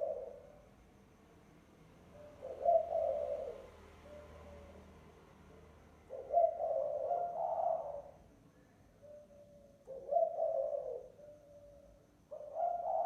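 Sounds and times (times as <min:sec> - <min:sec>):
dove cooing: 0:00.0 - 0:00.7, 0:02.1 - 0:05.0, 0:06.0 - 0:08.3, 0:09.0 - 0:13.0.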